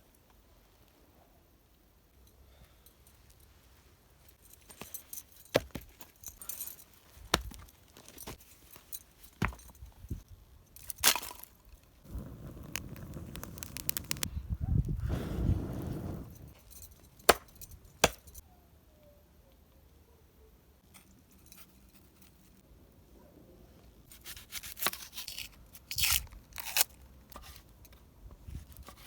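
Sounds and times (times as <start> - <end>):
cooking gear clinks and knocks: 4.4 - 11.9, 16.3 - 18.4
scraping: 12.1 - 14.3.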